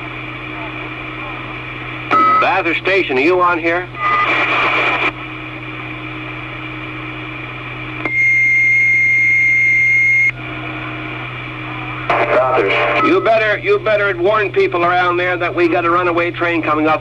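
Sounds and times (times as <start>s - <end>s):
radio channel hiss: 0.6s - 5.2s, 11.7s - 15.8s
high-pitched beep tone: 2.1s - 2.6s, 12.7s - 13.3s
radio static burst: 4.0s - 5.2s, 12.1s - 13.6s.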